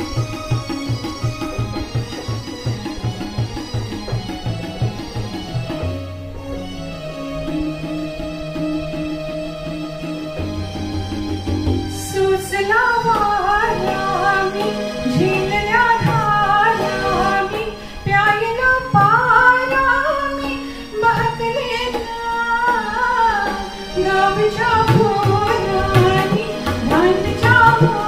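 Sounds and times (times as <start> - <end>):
instrumental accompaniment: 0.0 - 28.0
woman singing: 11.9 - 28.0.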